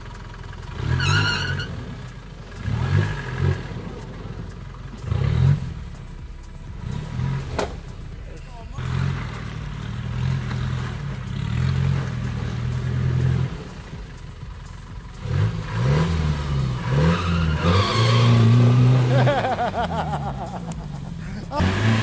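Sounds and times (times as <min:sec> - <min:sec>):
engine revving hard in mud: 0:00.0 - 0:14.5, 0:15.1 - 0:22.0.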